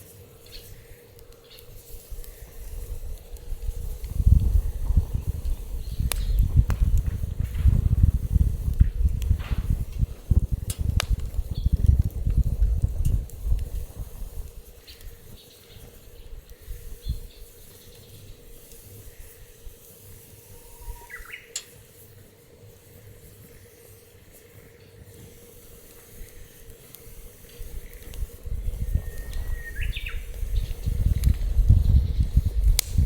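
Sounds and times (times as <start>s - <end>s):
wood fire crackling: 0.0s - 33.0s
low rumbling: 3.9s - 14.6s
whistling chirps: 20.5s - 21.6s, 28.9s - 31.0s.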